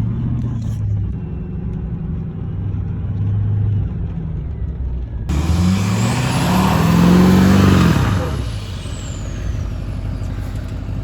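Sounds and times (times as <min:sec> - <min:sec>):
truck engine revving: 0:05.3 - 0:11.0.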